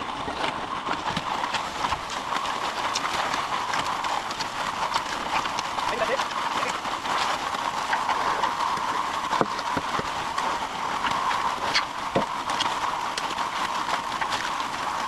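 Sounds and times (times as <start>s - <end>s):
concrete mixer running: 0.0s - 15.0s.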